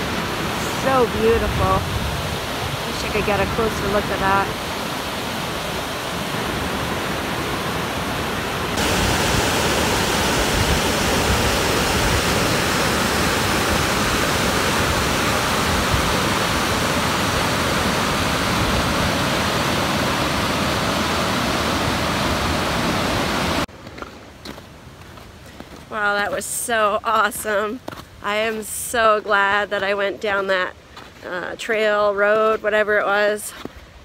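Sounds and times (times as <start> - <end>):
waterfall rushing: 0.0 - 23.7.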